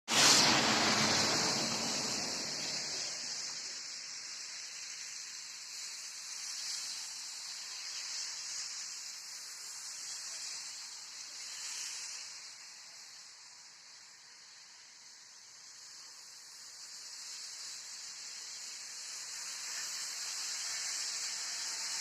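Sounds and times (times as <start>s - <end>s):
rain hissing: 0.0s - 22.0s.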